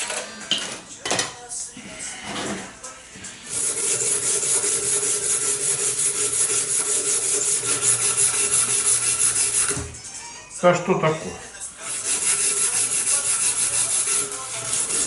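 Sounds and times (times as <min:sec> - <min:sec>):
sanding a knife: 0:03.5 - 0:09.8, 0:11.8 - 0:15.0.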